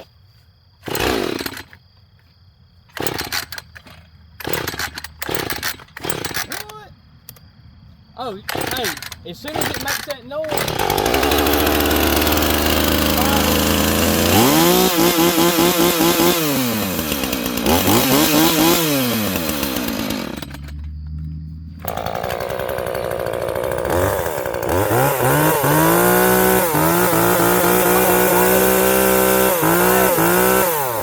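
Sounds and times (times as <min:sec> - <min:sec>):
chainsaw revving and idling: 0:00.8 - 0:01.8, 0:02.9 - 0:03.7, 0:04.4 - 0:06.8, 0:08.2 - 0:31.0.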